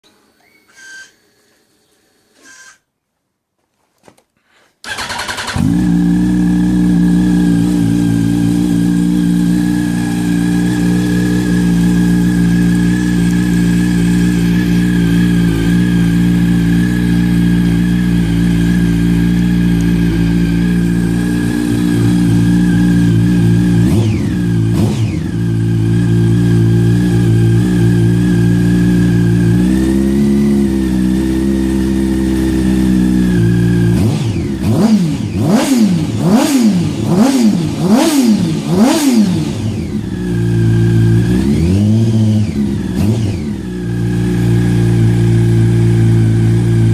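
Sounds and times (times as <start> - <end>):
motorcycle engine idling: 4.9 - 46.9.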